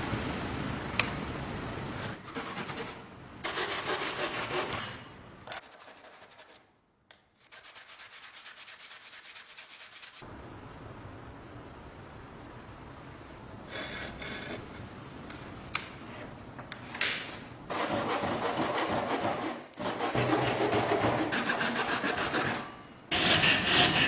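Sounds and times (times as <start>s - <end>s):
rapid scraping strokes: 7.4s - 10.2s.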